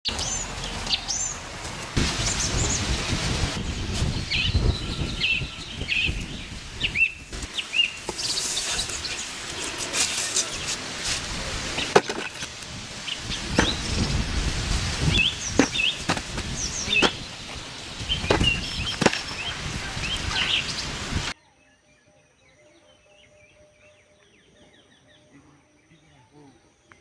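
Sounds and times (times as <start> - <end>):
rustling and rumbling noise: 1.5 - 21.3
small birds chirping: 2.1 - 11.0, 11.7 - 27.0.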